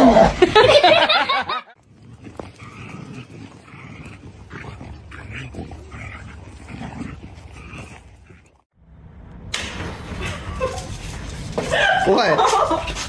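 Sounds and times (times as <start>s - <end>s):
dog grumbling: 1.9s - 8.6s.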